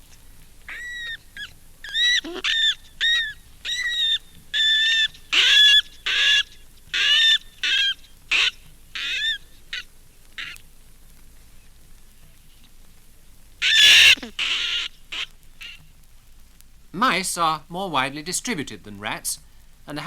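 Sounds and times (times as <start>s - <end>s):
rats squealing: 0.7s - 10.6s, 13.6s - 15.8s.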